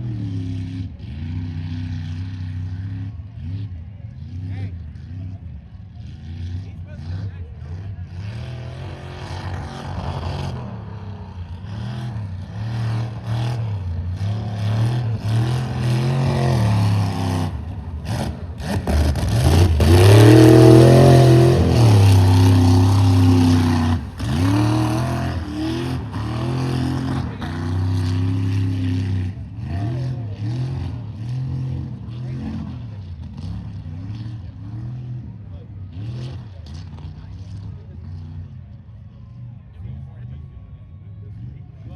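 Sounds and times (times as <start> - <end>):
truck engine revving hard: 6.1 - 35.2.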